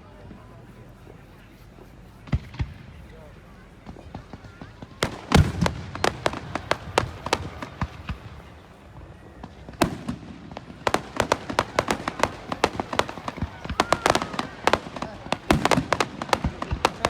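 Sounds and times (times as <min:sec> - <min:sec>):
fireworks cracking and popping: 0:00.0 - 0:17.0.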